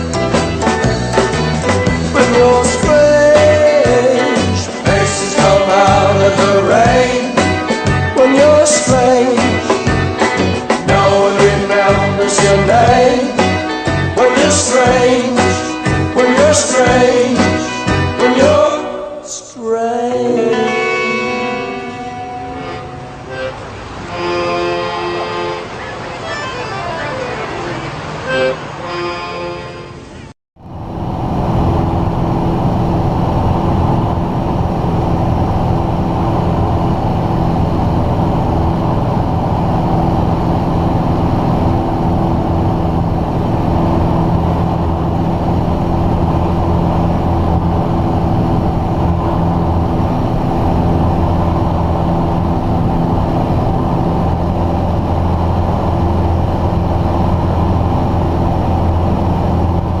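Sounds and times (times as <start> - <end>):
light aircraft engine droning: 20.2 - 60.0.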